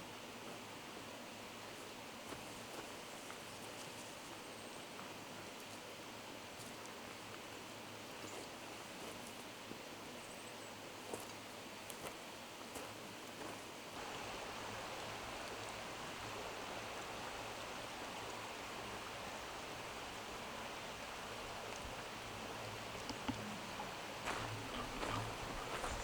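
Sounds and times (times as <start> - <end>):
flowing stream: 13.9 - 26.0.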